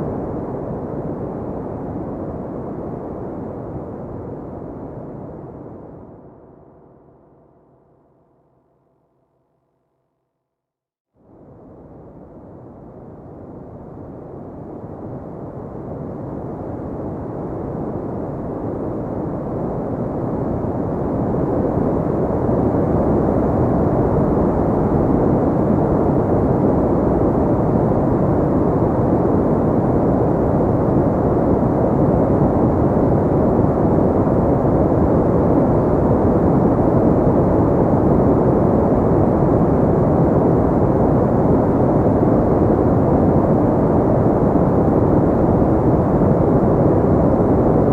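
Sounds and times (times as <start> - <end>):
deep filtered white noise hiss: 11.8 - 47.9.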